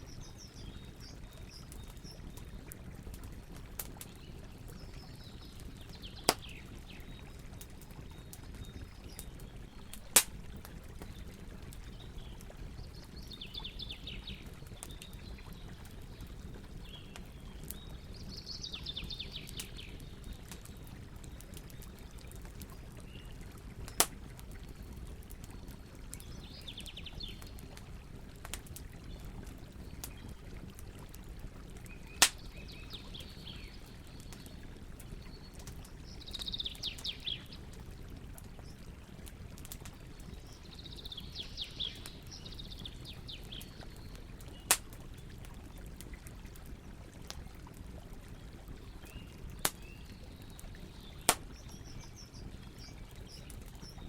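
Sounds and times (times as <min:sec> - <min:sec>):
campfire crackling: 0:00.0 - 0:54.0
fire pops: 0:05.8 - 0:06.8, 0:07.6 - 0:11.9, 0:23.9 - 0:24.4, 0:32.2 - 0:32.5, 0:44.5 - 0:45.1, 0:49.6 - 0:49.9, 0:51.2 - 0:51.8.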